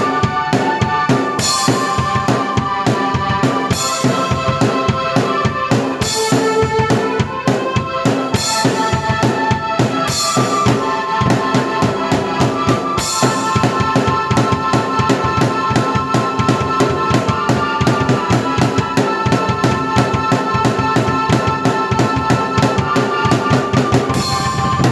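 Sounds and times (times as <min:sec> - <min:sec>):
bass drum and snare beat: 0:00.0 - 0:24.9
held keyboard notes: 0:00.0 - 0:24.9
cymbal crashes: 0:24.1 - 0:24.9.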